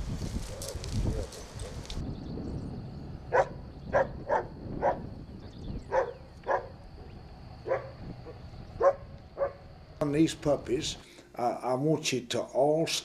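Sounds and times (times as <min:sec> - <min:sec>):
dog barking: 0:03.3 - 0:05.0, 0:05.9 - 0:06.8, 0:07.6 - 0:09.6.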